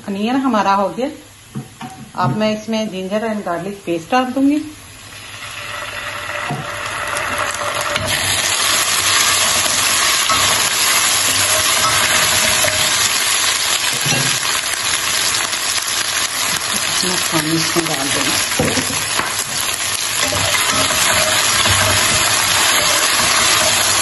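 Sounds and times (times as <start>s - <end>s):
onions sizzling in hot oil: 4.2s - 24.0s
spatula stirring in pan: 6.5s - 17.0s, 18.2s - 24.0s.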